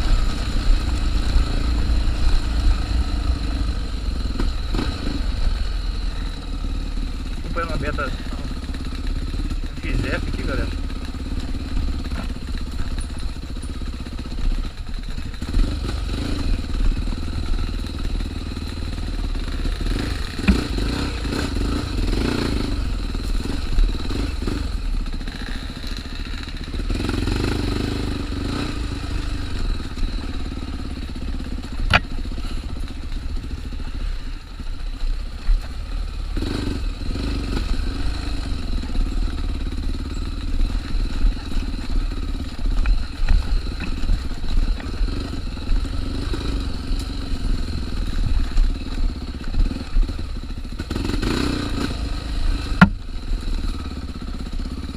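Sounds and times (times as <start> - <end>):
motorcycle engine revving: 0.0 - 54.9
sharp knocks from rough ground: 19.9 - 21.2, 31.6 - 32.9, 40.1 - 45.2, 52.6 - 53.2.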